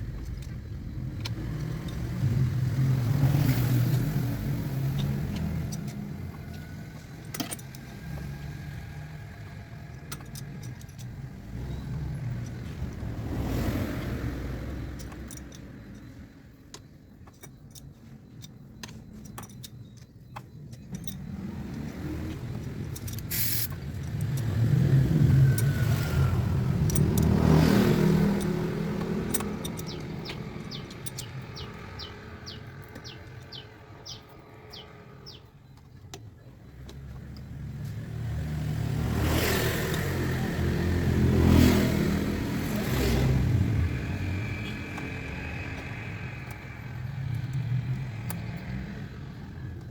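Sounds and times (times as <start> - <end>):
motor vehicles passing: 0.0 - 16.6, 20.8 - 49.9
light metallic clicks: 14.8 - 38.3.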